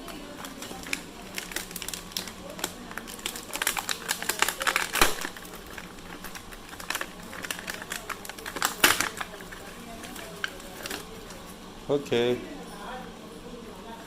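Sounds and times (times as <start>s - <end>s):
plastic toy parts clicking: 0.7s - 9.3s.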